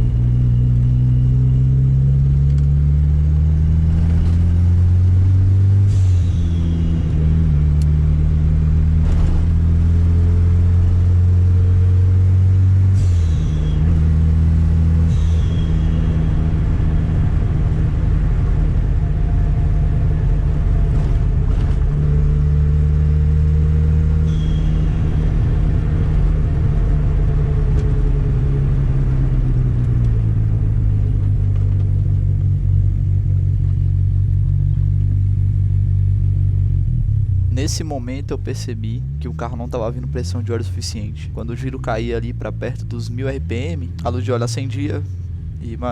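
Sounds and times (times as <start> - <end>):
car engine revving: 0.0 - 45.9.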